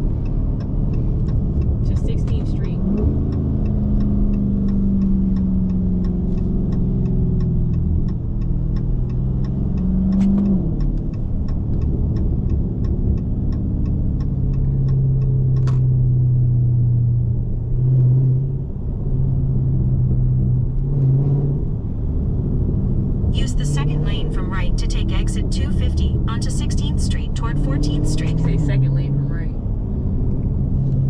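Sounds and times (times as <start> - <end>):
car engine cruising: 0.0 - 31.0
fast even ticking: 23.3 - 29.5.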